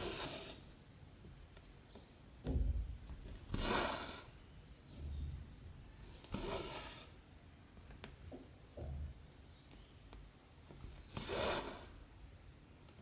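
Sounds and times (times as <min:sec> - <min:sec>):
soft bumps: 0:02.4 - 0:03.8.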